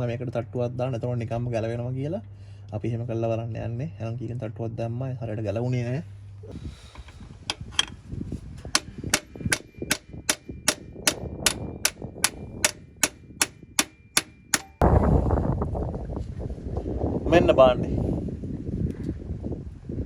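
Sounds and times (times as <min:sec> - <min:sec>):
hammer striking metal: 0:08.7 - 0:14.8.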